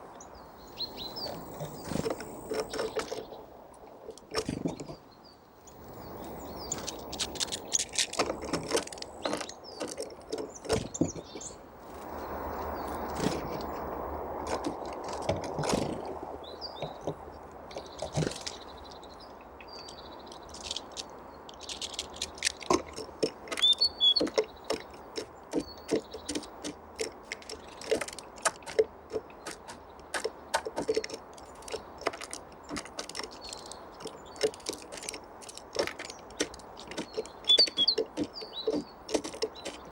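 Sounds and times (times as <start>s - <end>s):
birds pecking seeds: 0.0s - 39.9s
high bird call notes: 23.5s - 24.5s, 37.2s - 38.9s.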